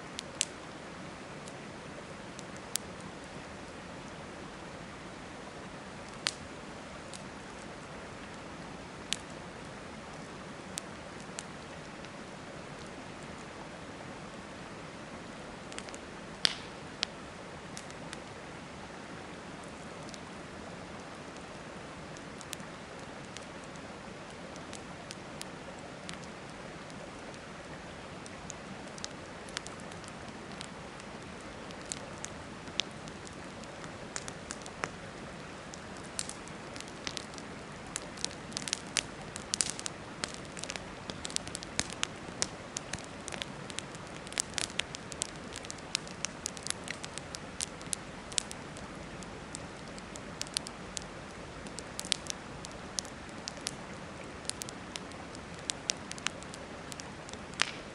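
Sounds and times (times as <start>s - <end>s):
wood fire crackling and popping: 0.0s - 4.8s, 5.6s - 13.5s, 15.3s - 18.8s, 19.5s - 57.9s.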